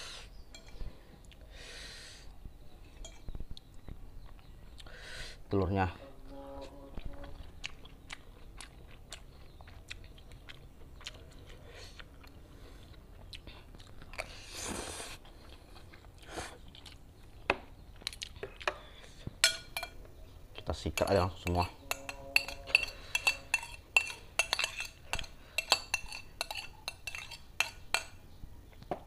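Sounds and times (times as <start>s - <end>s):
person chewing food: 0.2s - 1.5s, 3.0s - 5.0s, 6.9s - 28.9s
metal cutlery clinking on tray: 21.0s - 28.2s.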